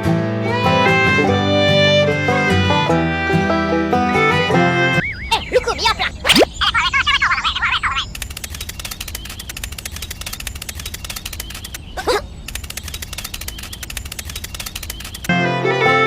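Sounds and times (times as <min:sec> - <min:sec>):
music with strings: 0:15.3 - 0:16.0.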